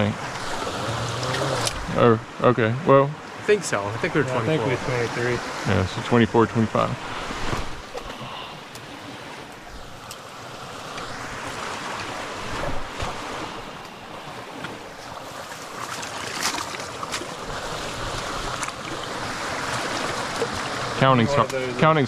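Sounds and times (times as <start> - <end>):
stream water running: 0.0 - 22.0
splashes from wading: 14.5 - 21.7.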